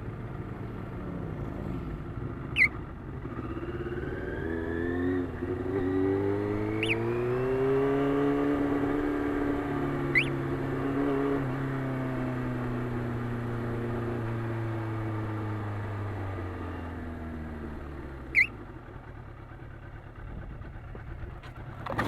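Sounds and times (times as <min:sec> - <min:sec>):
motorcycle engine slowing: 0:17.3 - 0:22.0.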